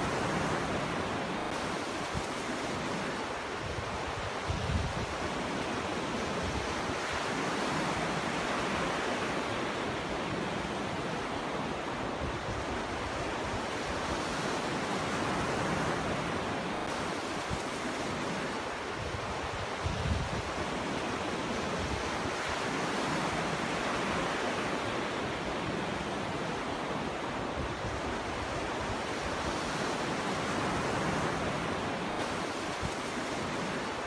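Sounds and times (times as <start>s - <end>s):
wind rumble on microphone: 0.0s - 9.4s, 11.9s - 26.1s
ocean waves washing onto beach: 0.0s - 34.0s.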